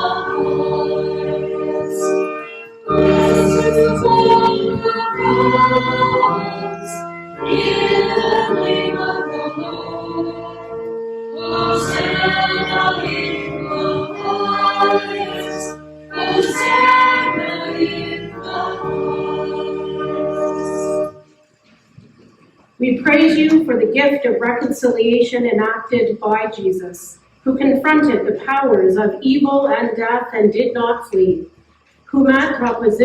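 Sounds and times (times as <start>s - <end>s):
choir singing held notes: 0.0s - 21.4s
instrumental accompaniment: 0.0s - 21.6s.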